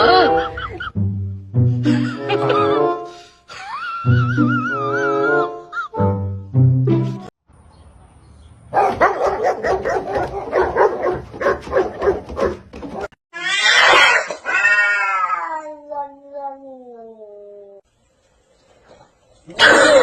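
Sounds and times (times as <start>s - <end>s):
drawn-out yowl: 13.4s - 15.8s.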